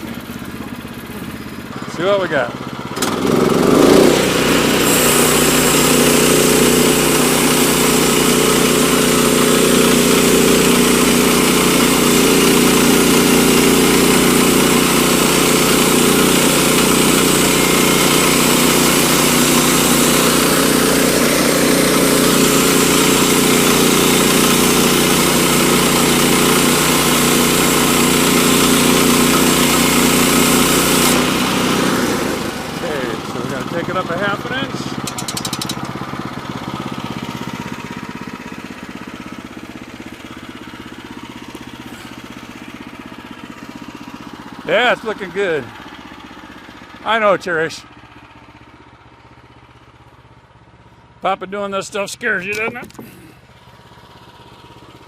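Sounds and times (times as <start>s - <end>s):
sawmill gasoline engine running: 0.0s - 55.0s
band blade sawing through log: 2.0s - 35.8s.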